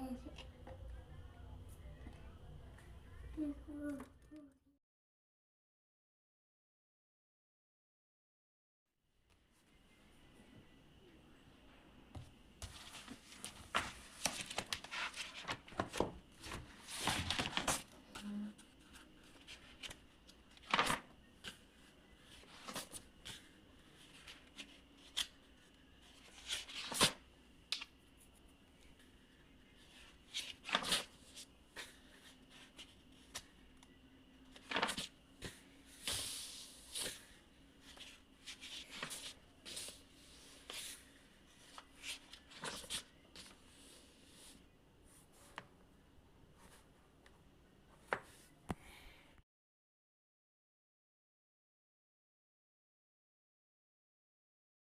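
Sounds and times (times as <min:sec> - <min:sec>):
faint steady hum: 0:00.0 - 0:04.7, 0:09.3 - 0:49.4.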